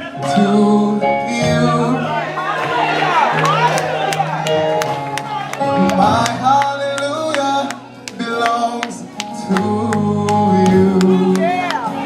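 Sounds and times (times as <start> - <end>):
person singing wordless phrases: 0.0 - 2.5, 5.7 - 12.0.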